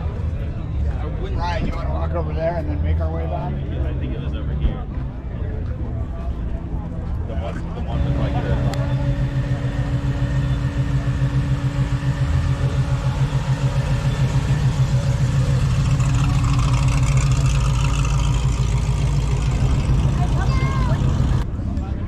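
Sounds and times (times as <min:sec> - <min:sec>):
car engine idling: 0:04.8 - 0:21.5.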